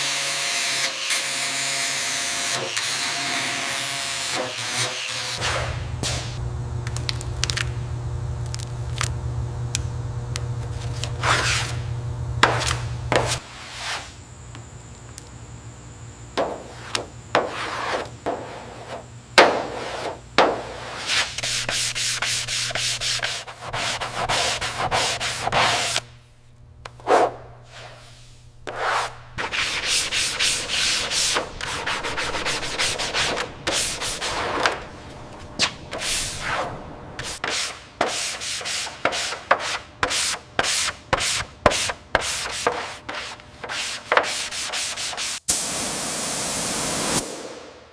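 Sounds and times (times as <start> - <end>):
steady low hum: 5.4 - 43.7
abrasive rubbing and scraping: 27.0 - 39.7.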